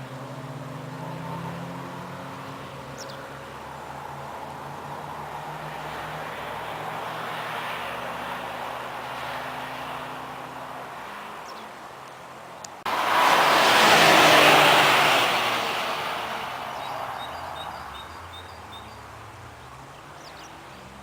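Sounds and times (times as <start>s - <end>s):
race car passing at speed: 0.0s - 12.0s, 12.8s - 21.0s
engine hum: 0.0s - 21.0s.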